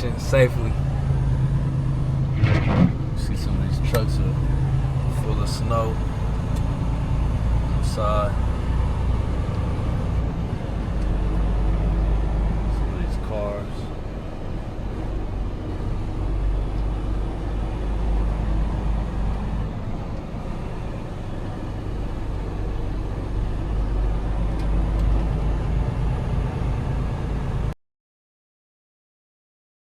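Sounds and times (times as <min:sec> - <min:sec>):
truck diesel engine rumbling: 0:00.0 - 0:27.7.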